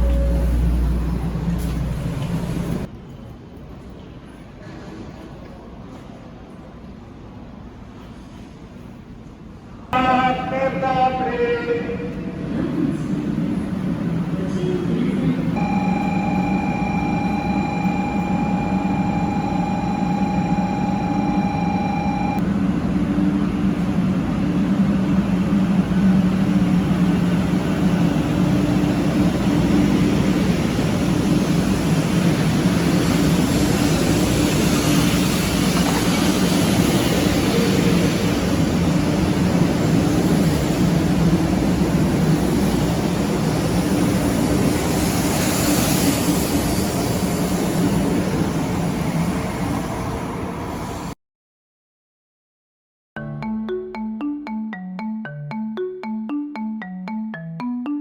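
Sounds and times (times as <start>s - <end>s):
high-speed train rumble: 0.0s - 51.2s
steady high tone: 15.6s - 22.4s, 53.2s - 58.0s.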